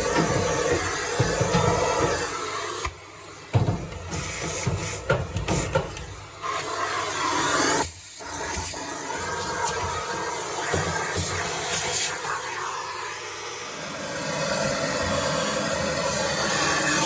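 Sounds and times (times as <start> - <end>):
brush knocking inside dryer drum: 0.0 - 6.4
vacuum cleaner running: 0.0 - 17.0.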